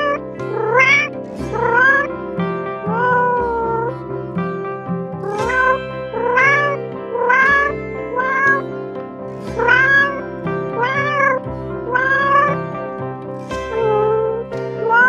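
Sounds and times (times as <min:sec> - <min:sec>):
cat meowing: 0:00.0 - 0:02.1, 0:02.9 - 0:03.9, 0:05.2 - 0:08.6, 0:09.6 - 0:12.6, 0:13.8 - 0:15.0
background music with low drone: 0:00.0 - 0:15.0.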